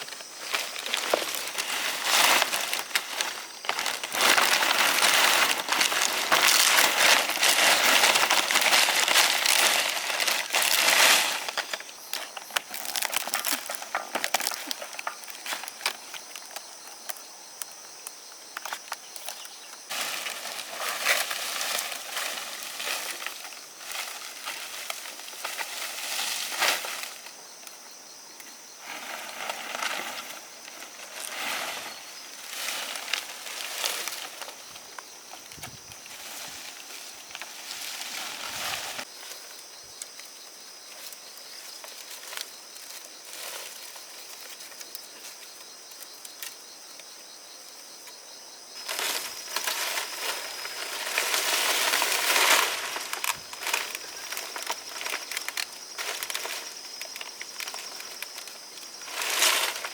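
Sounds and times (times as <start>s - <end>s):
dry rice stalks rustling: 0.0s - 16.4s, 19.3s - 27.4s, 28.8s - 39.8s, 40.7s - 45.4s, 48.8s - 59.9s.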